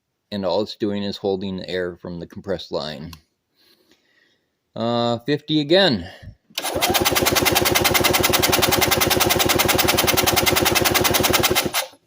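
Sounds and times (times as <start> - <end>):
engine cranking on starter: 6.6 - 12.0.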